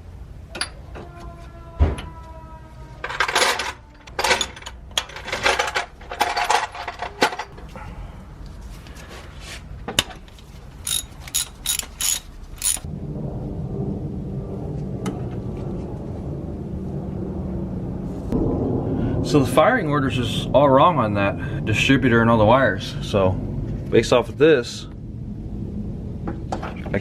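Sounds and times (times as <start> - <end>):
steady low hum: 0.0 - 1.0, 3.9 - 27.0
rattling and scraping: 3.0 - 7.8, 8.5 - 12.9
sharp metallic clicks: 10.8 - 12.9.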